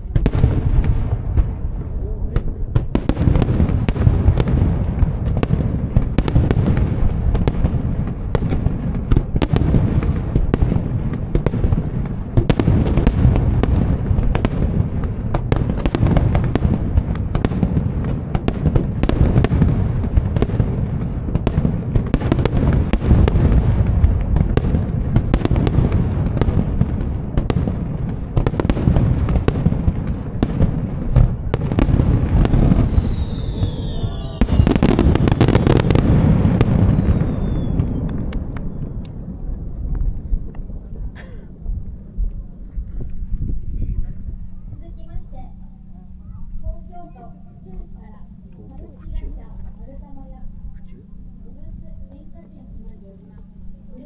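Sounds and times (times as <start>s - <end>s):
fireworks booming: 0.0s - 49.9s
fireworks cracks and pops: 2.3s - 43.6s.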